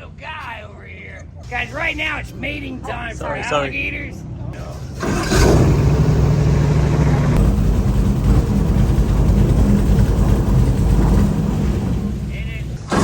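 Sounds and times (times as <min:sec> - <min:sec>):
boat engine throttling up: 0:04.6 - 0:13.0.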